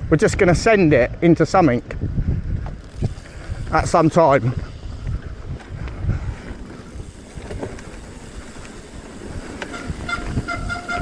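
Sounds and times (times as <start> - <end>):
wind buffeting microphone: 0.0 - 11.0
bike rolling on trail: 1.9 - 11.0
short steady tones: 9.3 - 11.0.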